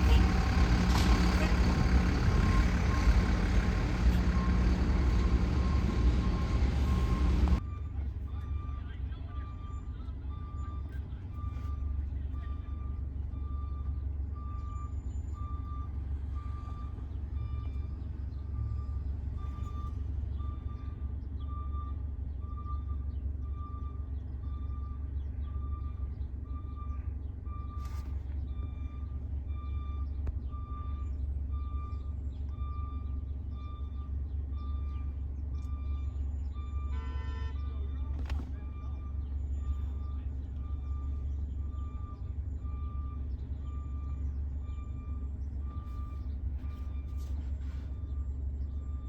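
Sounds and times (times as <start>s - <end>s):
reverse alarm beeping: 0.0s - 18.0s, 28.5s - 47.4s
diesel engine running: 0.0s - 49.0s.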